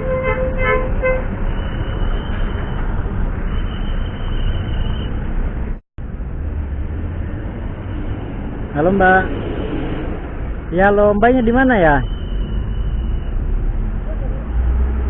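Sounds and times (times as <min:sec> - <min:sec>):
vehicle horn tooting: 0:00.0 - 0:02.8
roadside traffic: 0:00.0 - 0:15.0.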